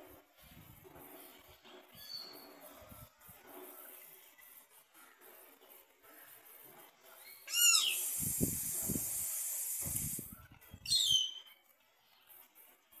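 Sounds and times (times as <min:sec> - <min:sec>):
steady high hiss: 0:07.5 - 0:10.4
wind rumble on microphone: 0:08.2 - 0:09.2.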